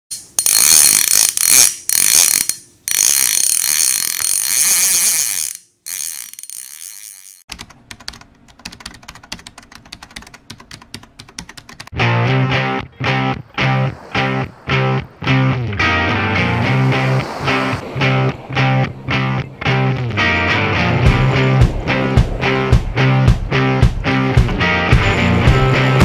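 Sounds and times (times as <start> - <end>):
fast mechanical ratchet clicking: 0.1 - 10.4.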